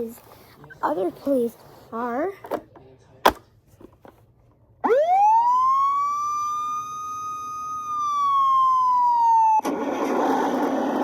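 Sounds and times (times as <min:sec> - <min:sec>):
toy police siren wailing: 0:04.9 - 0:09.6.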